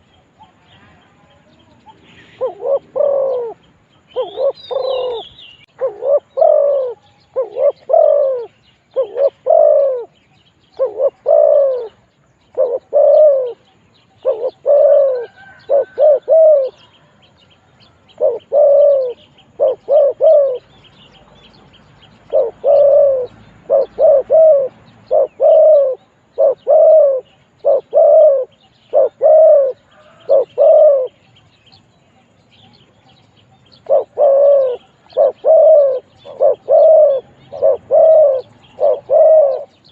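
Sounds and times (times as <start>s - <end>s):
small birds chirping: 0.0s - 39.9s
dove cooing: 1.6s - 17.4s, 18.0s - 20.8s, 22.2s - 31.3s, 33.7s - 39.9s.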